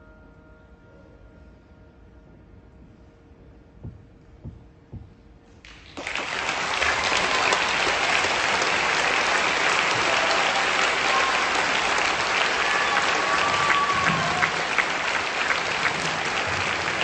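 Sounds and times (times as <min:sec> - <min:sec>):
audience applause: 0:05.7 - 0:17.0.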